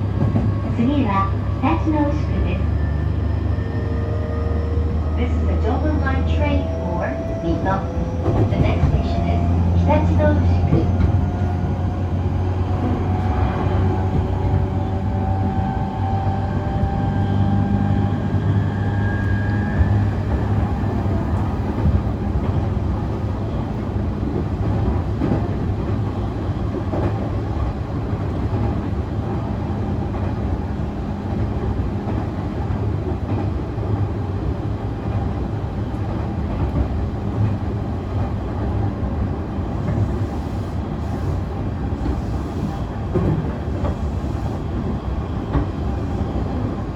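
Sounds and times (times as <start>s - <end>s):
wheels rumbling on rail: 0.0s - 46.9s.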